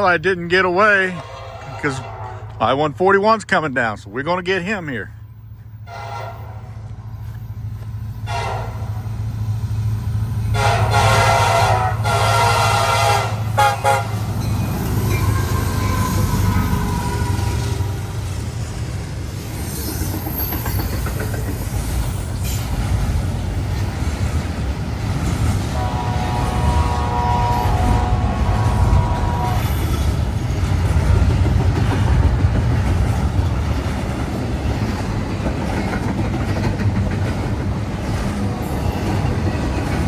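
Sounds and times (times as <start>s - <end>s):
train engine rumble: 0.0s - 40.0s
train rolling past: 0.0s - 40.0s
locomotive air horn: 1.0s - 2.7s, 5.8s - 6.8s, 8.2s - 9.2s, 10.5s - 14.3s, 15.2s - 17.9s, 25.7s - 30.3s.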